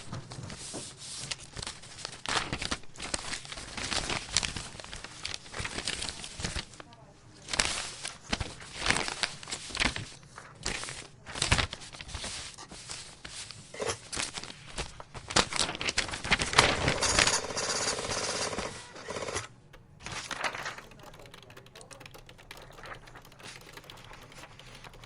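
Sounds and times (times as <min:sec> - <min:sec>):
keyboard typing clicks: 0:19.8 - 0:25.0.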